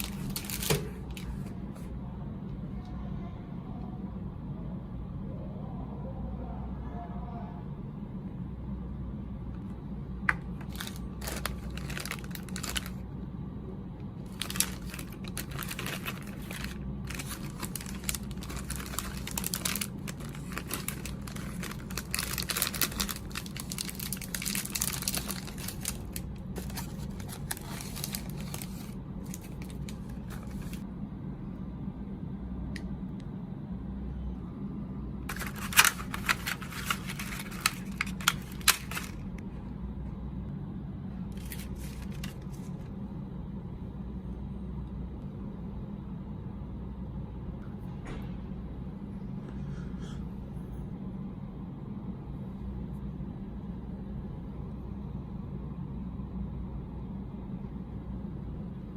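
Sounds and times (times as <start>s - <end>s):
plastic wrapper crinkling: 0.0s - 1.5s, 10.5s - 13.0s, 14.2s - 30.8s, 35.3s - 39.4s, 41.3s - 42.8s
low steady hum: 0.0s - 58.9s.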